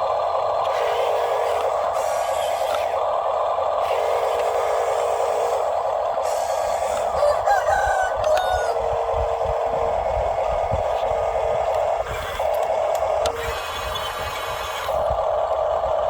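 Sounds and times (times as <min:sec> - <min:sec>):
steady mechanical whine: 0:00.0 - 0:16.0
rooster crowing: 0:06.8 - 0:08.9.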